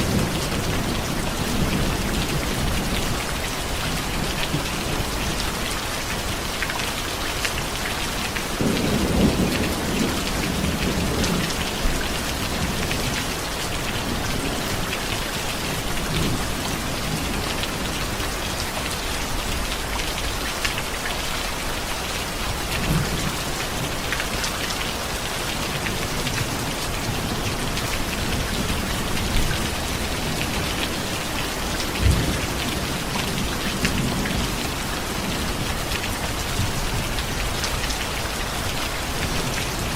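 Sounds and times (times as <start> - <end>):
heavy rain pattering: 0.0 - 39.9
thunder rumbling: 8.6 - 14.9.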